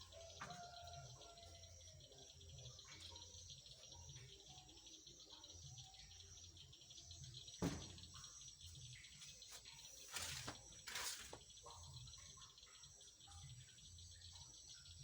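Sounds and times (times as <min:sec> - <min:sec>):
insects chirring: 0:00.0 - 0:15.0
sharp knock: 0:07.6 - 0:08.2.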